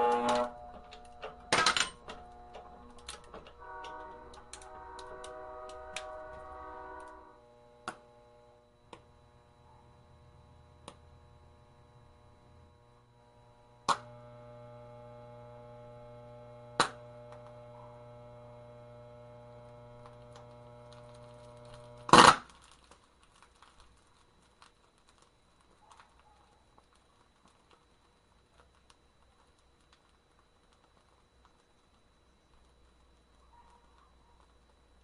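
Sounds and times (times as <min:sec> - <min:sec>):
faint ticks and crackles: 0:00.0 - 0:35.0
steady electrical hum: 0:00.0 - 0:35.0.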